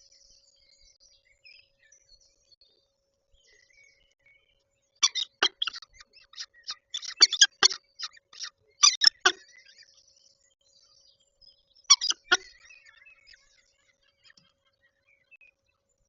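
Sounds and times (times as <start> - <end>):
falcon giving harsh calls: 5.0 - 9.4, 11.9 - 12.4.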